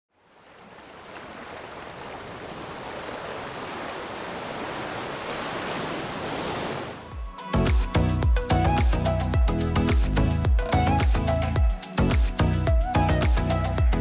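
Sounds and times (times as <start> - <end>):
ocean surf rushing: 1.2 - 8.0.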